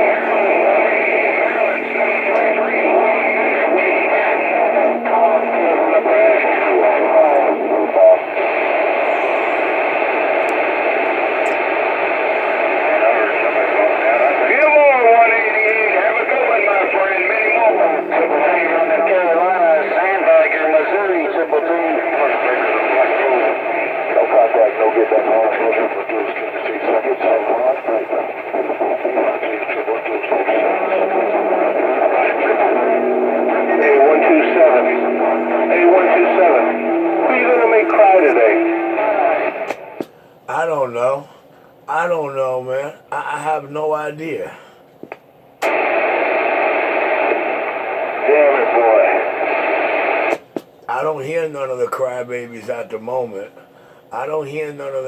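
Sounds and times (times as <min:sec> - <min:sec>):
garbled radio voice: 0:00.0 - 0:41.3
radio static hiss: 0:00.0 - 0:55.0
low steady tone: 0:31.0 - 0:40.0.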